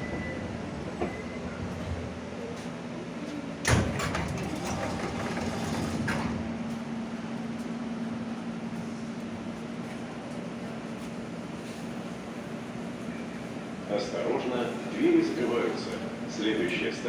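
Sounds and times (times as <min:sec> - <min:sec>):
pneumatic doors banging open: 0:03.7 - 0:06.5.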